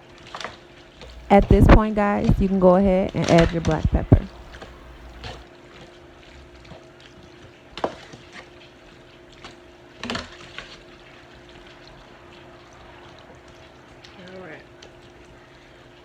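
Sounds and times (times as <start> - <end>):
faint steady hum: 1.1 - 5.4.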